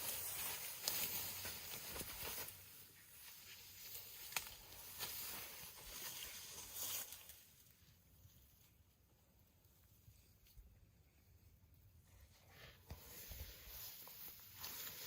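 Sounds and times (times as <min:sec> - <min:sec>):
leafy branches rustling: 0:00.0 - 0:08.7, 0:13.0 - 0:15.0
branches snapping: 0:04.1 - 0:05.3.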